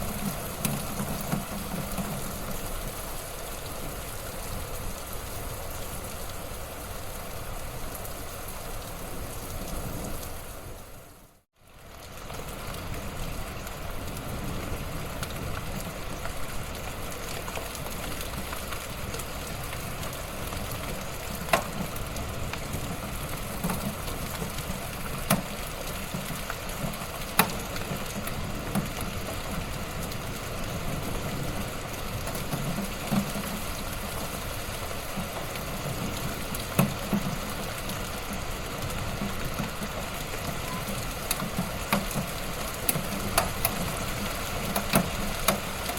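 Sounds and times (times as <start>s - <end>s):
wood fire crackling and popping: 15.1s - 45.9s.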